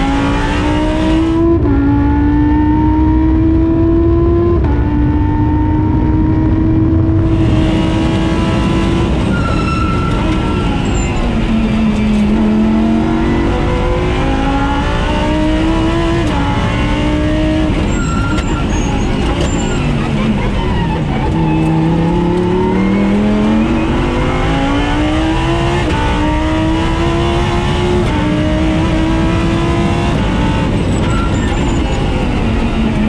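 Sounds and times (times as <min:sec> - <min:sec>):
race car engine shifting gears: 0:07.1 - 0:33.0.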